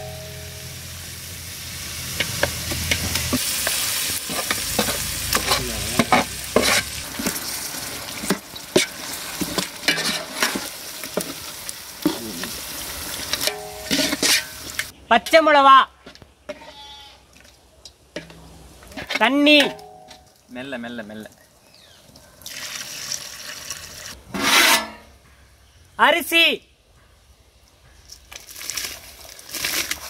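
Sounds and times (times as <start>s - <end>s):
chicken sizzling in a pot: 0.0s - 14.9s
ladle scraping and knocking pot: 2.2s - 7.4s, 8.2s - 11.4s, 13.3s - 14.9s.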